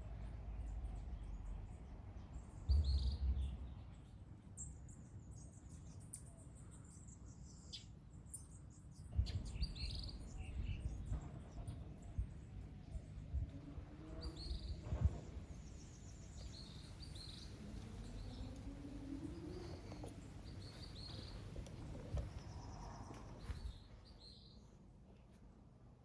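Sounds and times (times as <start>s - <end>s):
birds chirping: 15.4s - 24.6s.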